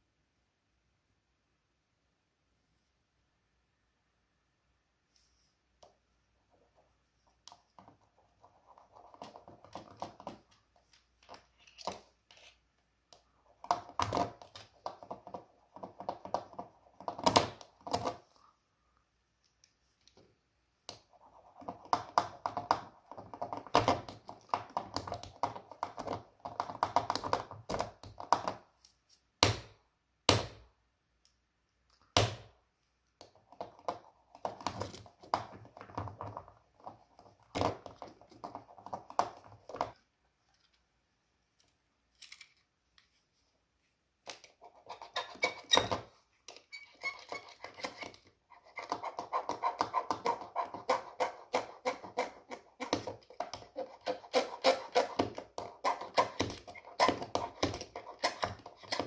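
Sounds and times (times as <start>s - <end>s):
small hard parts clicking and scraping: 41.6s - 43.1s, 44.3s - 59.0s.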